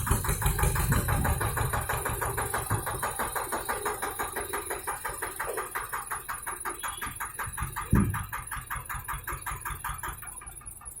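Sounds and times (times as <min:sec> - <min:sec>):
diesel engine clatter: 0:00.0 - 0:11.0
heavy thump: 0:07.9 - 0:08.3.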